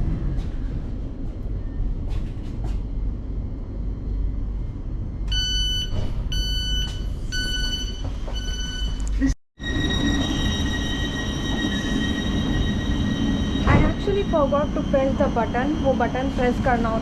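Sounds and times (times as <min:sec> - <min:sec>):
train rumbling: 0:00.0 - 0:17.0
two-tone door beeper: 0:05.3 - 0:14.4.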